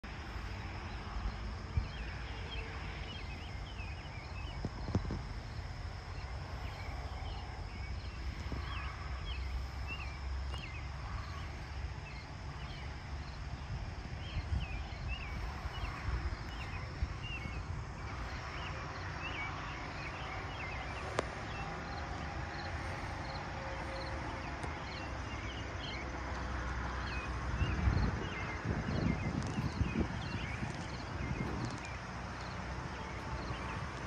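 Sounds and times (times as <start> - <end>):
bird chirping: 27.0 - 33.8.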